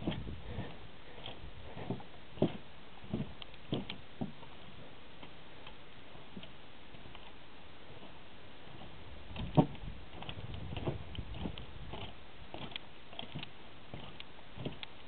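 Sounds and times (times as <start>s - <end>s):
footsteps on wooden boardwalk: 0.0s - 4.6s, 8.0s - 14.8s
faint steady hiss: 0.0s - 15.0s.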